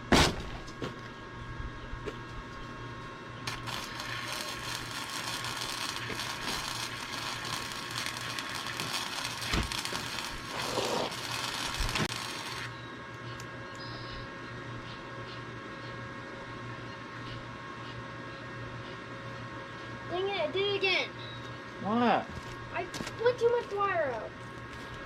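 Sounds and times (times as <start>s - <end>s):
welder humming: 0.0s - 14.8s
welding arc crackling: 3.4s - 12.8s.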